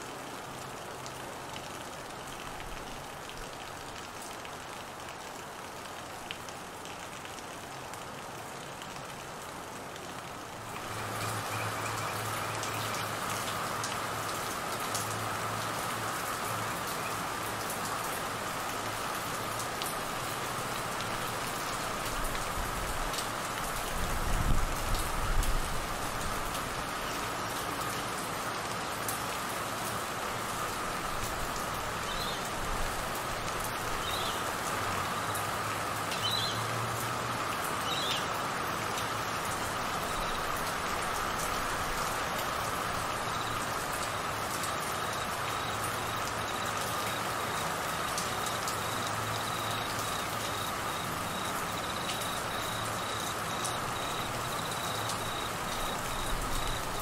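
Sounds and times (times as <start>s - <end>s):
rain falling on trees: 0.0s - 57.0s
crickets droning: 43.1s - 57.0s.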